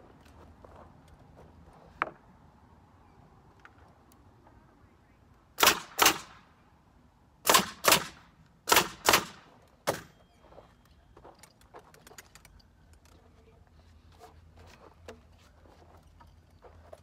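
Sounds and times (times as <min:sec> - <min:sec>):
small clicks and handling noise: 0:10.8 - 0:17.0.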